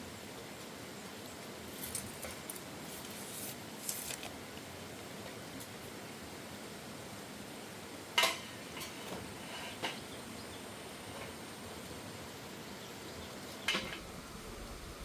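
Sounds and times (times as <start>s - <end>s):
steady low hiss: 0.0s - 15.0s.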